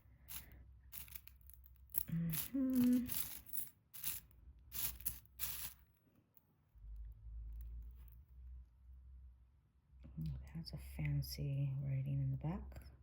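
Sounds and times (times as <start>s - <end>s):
jewelry rustling and crinkling: 0.0s - 6.4s
person humming: 2.1s - 3.2s.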